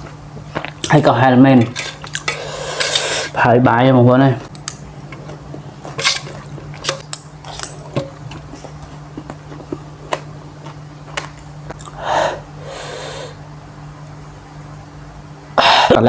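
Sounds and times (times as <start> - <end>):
steady low hum: 0.0 - 16.0
wet chewing and biting: 5.8 - 12.0.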